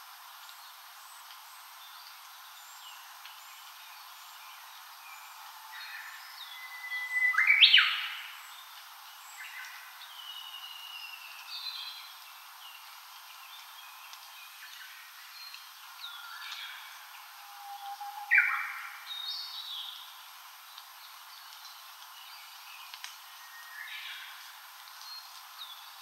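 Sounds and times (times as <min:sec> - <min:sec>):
wild birds chirping and whistling: 0:15.4 - 0:20.0
sharp upward bird call: 0:17.3 - 0:19.1.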